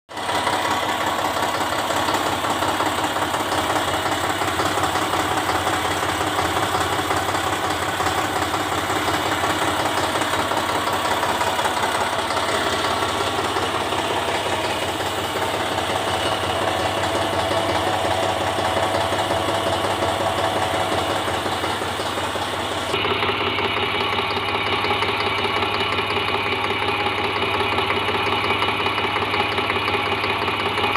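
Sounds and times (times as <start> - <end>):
vehicle engine idling: 0.1 - 30.9.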